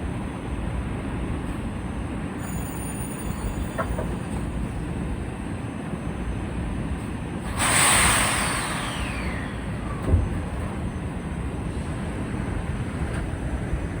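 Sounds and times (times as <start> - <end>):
train rumble: 0.0 - 14.0
air brakes hissing: 7.4 - 10.1.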